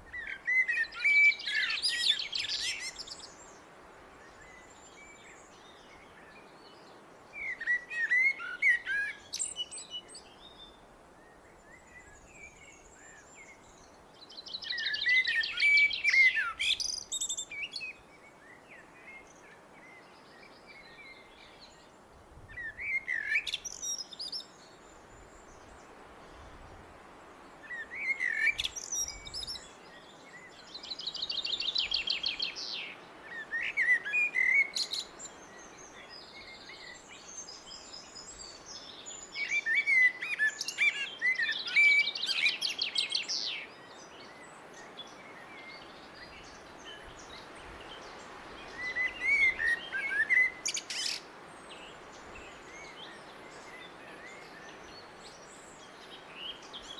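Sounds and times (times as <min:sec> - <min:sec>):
steady outdoor hiss: 0:00.0 - 0:56.9
blackbird singing: 0:00.1 - 0:03.4, 0:07.4 - 0:10.8, 0:14.2 - 0:19.2, 0:22.5 - 0:24.6, 0:27.7 - 0:47.4, 0:48.0 - 0:56.9.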